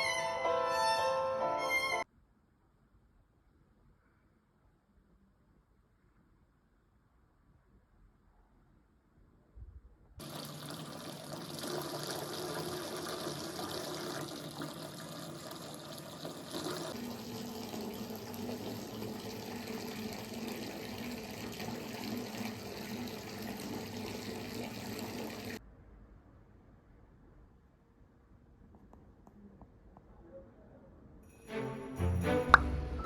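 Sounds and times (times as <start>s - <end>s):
water running: 10.2s - 25.6s.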